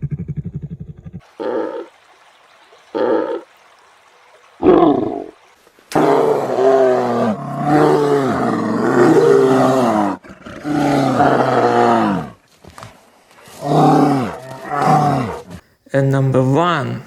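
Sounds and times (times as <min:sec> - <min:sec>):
bear roaring: 0:00.0 - 0:01.9, 0:04.6 - 0:12.4, 0:13.4 - 0:15.6.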